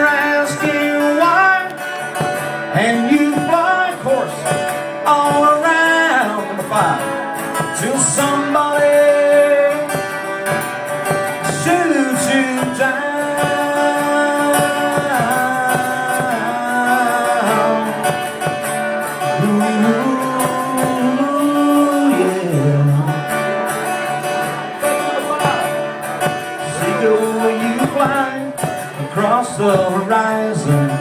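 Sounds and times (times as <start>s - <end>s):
guitar playing: 0.0s - 31.0s
person singing: 11.3s - 24.2s, 26.5s - 31.0s.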